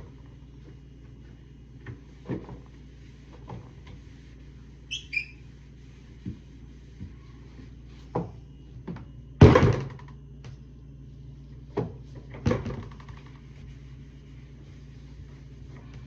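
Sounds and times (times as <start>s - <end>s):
refrigerator low hum: 0.0s - 16.0s
knocks and clatters at refrigerator: 8.1s - 10.2s, 11.7s - 13.5s.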